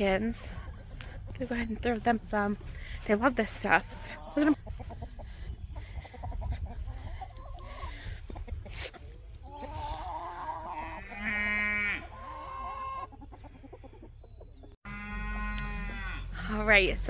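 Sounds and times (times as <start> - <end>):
chickens clucking: 0.0 - 16.4
goat bleating: 10.6 - 12.4.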